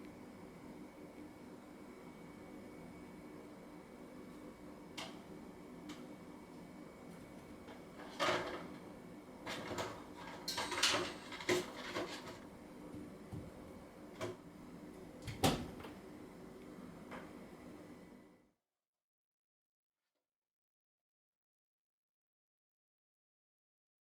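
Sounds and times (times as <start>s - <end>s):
washing machine hum: 0.0s - 18.4s.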